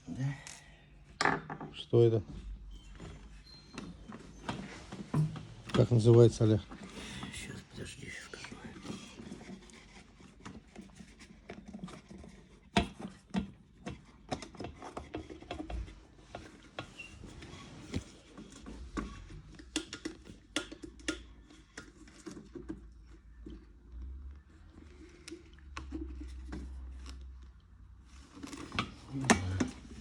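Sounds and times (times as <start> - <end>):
clicks and knocks of handling kettle parts: 19.5 - 23.6.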